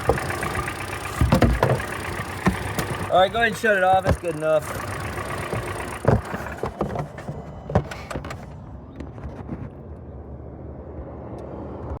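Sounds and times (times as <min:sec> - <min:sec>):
car engine switching off: 0:00.0 - 0:08.8
knocks and clunks: 0:00.0 - 0:09.8.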